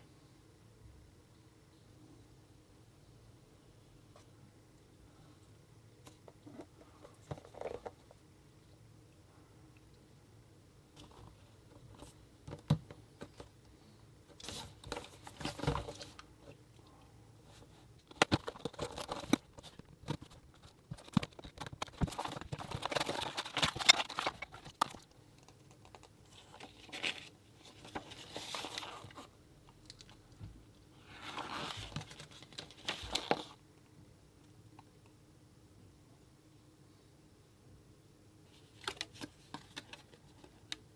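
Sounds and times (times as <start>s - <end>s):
packaging rustling and crinkling: 17.5s - 29.3s, 31.1s - 33.6s.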